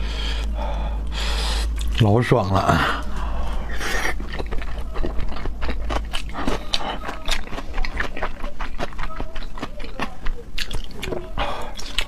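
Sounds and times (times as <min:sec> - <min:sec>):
rushing breath: 0:00.0 - 0:01.8, 0:02.7 - 0:04.2
person chewing: 0:00.0 - 0:12.0.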